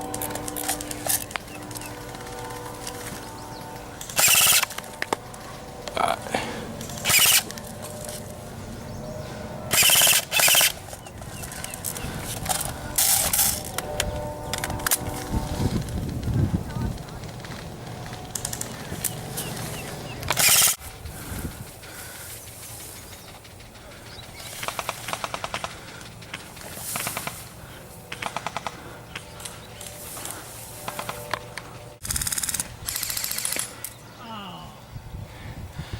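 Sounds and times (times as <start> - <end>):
airsoft gun full-auto bursts: 4.1 - 4.8, 6.9 - 7.7, 9.7 - 10.8, 20.3 - 20.8, 32.0 - 33.8.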